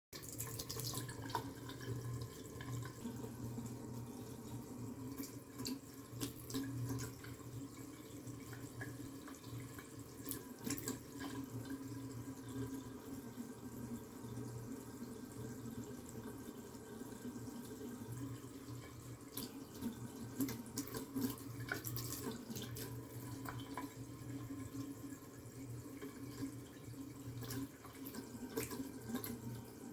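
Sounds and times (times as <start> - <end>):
water splashes and drips: 0.2 - 3.7, 4.4 - 12.6, 18.7 - 25.0, 25.9 - 29.9
water running from a tap: 0.2 - 29.9.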